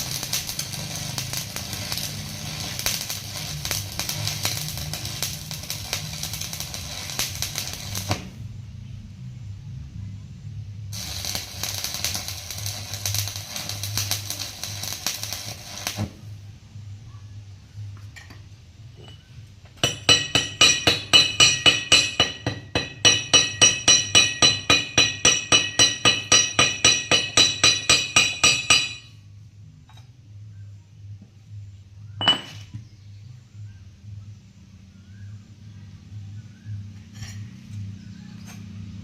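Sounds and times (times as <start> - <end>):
welding arc crackling: 0.0 - 8.4, 10.9 - 16.3, 19.8 - 29.1
steady low hum: 0.0 - 39.0
hammer clinking on steel: 19.0 - 29.2, 32.2 - 32.6.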